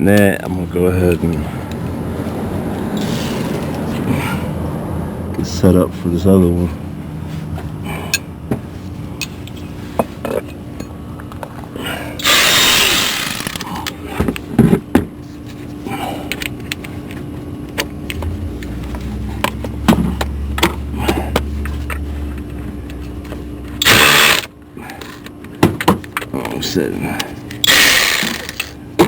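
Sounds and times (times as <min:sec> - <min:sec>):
steady low hum: 0:00.0 - 0:29.0
electric ratchet spinning: 0:12.2 - 0:13.7, 0:23.8 - 0:24.5, 0:27.6 - 0:28.8
tools clicking and knocking: 0:27.5 - 0:28.8.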